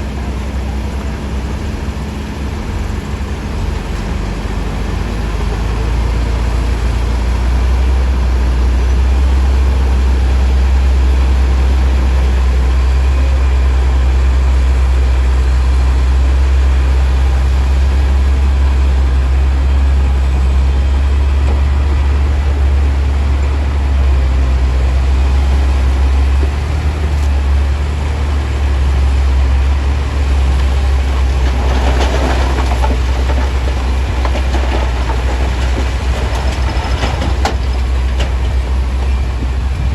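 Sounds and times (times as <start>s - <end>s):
heavy diesel machinery rumbling: 0.0s - 39.9s
rattling noise: 30.2s - 39.9s.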